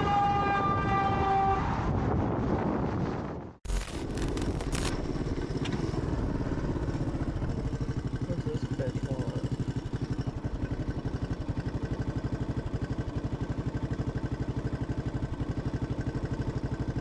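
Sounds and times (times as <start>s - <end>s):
motorcycle engine idling: 4.1s - 17.0s.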